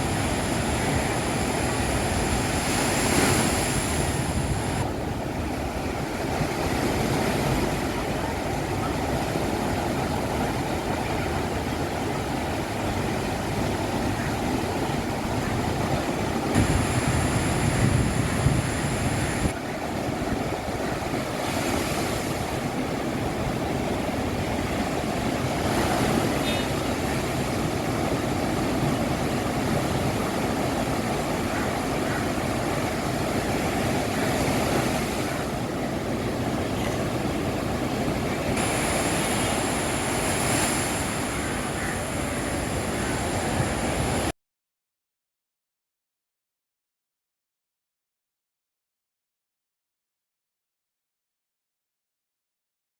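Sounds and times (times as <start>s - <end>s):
sea waves washing: 0.0s - 44.3s
wind rumbling on microphone: 0.0s - 44.3s.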